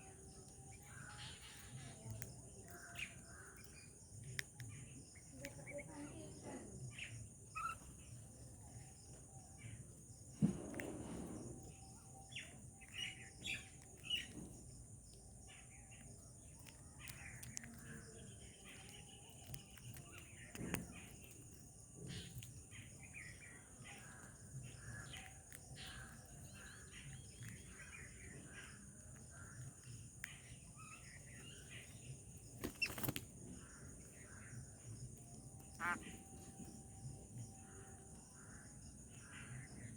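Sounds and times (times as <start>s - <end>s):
small birds chirping: 0.0s - 39.9s
thump: 10.4s - 11.5s.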